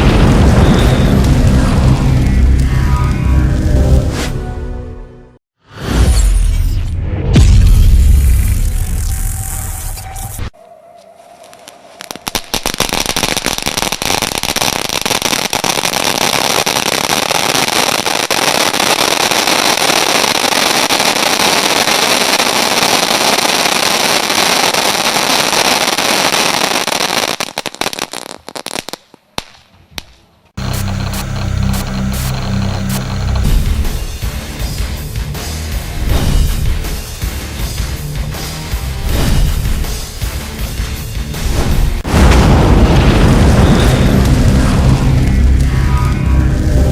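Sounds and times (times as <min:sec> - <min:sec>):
firework crackling: 0:00.0 - 0:02.7, 0:11.5 - 0:34.4
music: 0:00.0 - 0:05.4, 0:30.6 - 0:46.9.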